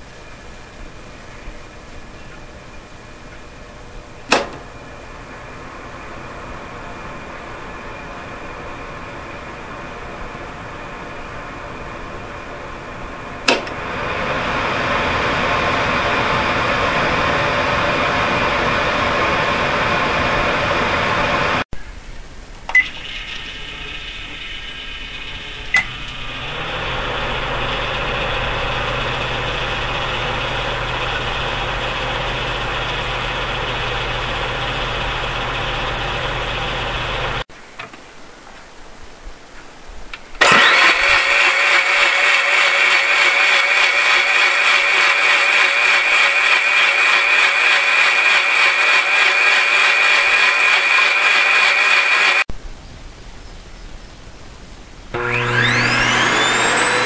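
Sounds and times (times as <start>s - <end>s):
low hum: 0.0s - 37.5s, 55.1s - 57.0s
loud machine running: 3.3s - 21.6s, 22.8s - 37.5s, 40.4s - 52.5s, 55.2s - 57.0s
sharp switch clicks: 4.3s - 4.7s, 13.5s - 13.8s
electric motors running: 4.4s - 21.6s, 22.8s - 37.4s, 40.4s - 52.5s, 55.2s - 57.0s.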